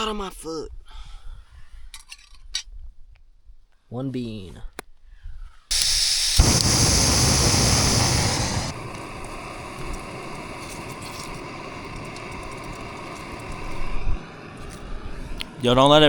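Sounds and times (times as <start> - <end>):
gas stove hissing: 5.7 - 16.0.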